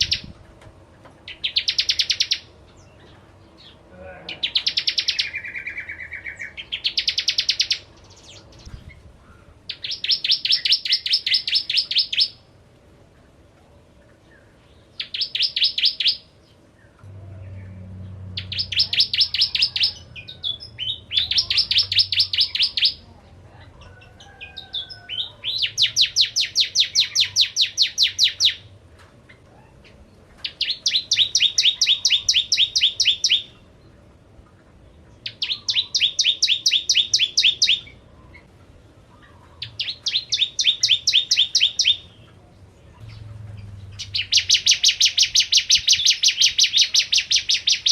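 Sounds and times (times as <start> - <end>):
bird trilling chip notes: 17.1 - 23.0, 43.0 - 47.9.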